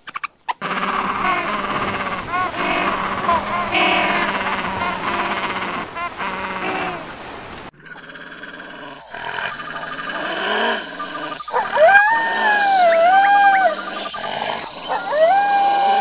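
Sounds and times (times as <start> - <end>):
wolf howling: 0.6 - 6.8, 10.5 - 16.0.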